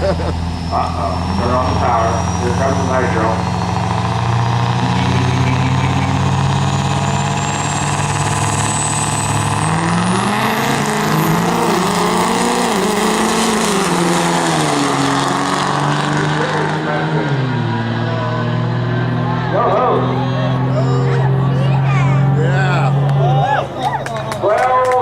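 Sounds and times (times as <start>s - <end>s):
diesel truck engines racing: 0.0s - 25.0s
high whistle climbing: 0.5s - 14.8s.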